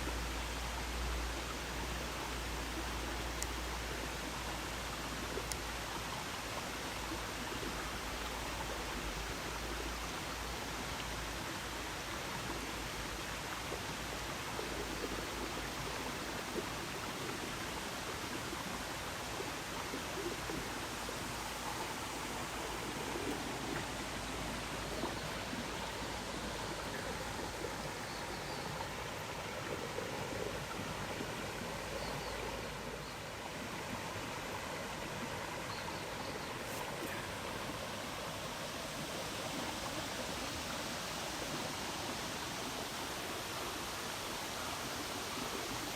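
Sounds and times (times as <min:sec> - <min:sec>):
stream flowing: 0:00.0 - 0:45.9.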